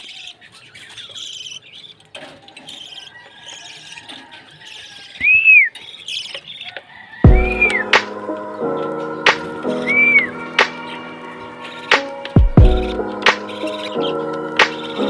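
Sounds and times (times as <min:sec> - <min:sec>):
lovebirds chattering: 0:00.0 - 0:15.0
rising and falling bird calls: 0:00.0 - 0:15.0
music: 0:07.2 - 0:15.0.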